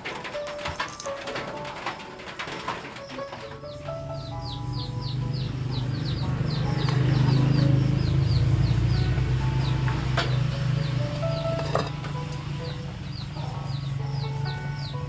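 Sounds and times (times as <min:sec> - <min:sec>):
small birds peeping: 0:00.3 - 0:15.0.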